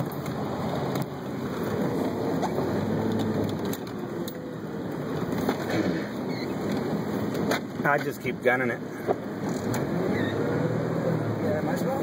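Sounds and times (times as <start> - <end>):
tyres on wet ground: 0.0 - 8.2
car engine driving: 0.0 - 12.0.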